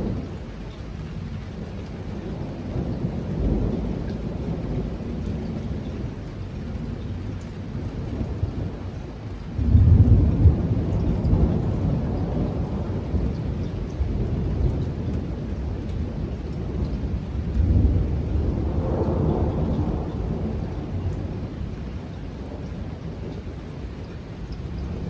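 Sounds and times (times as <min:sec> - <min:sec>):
heavy rain: 0:00.0 - 0:25.0
thunder rumbling: 0:00.0 - 0:25.0.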